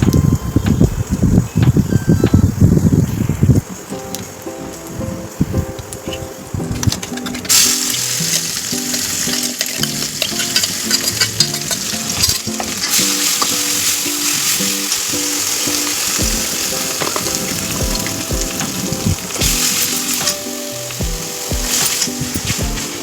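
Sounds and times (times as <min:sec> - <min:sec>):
background music: 0:00.0 - 0:23.0
food sizzling in hot oil: 0:02.8 - 0:23.0
stirring clicks: 0:05.8 - 0:23.0.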